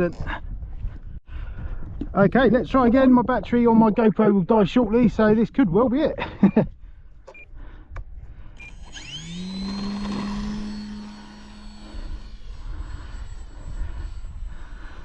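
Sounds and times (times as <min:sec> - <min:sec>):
electric motor and propeller whine: 0:08.5 - 0:15.0.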